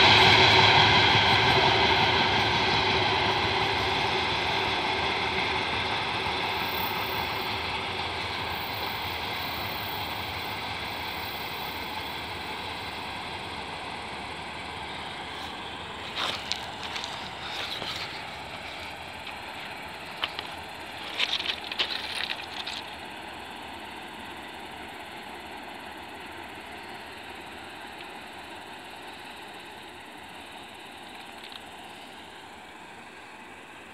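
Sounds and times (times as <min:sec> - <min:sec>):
freight train rumbling: 0:00.0 - 0:33.9.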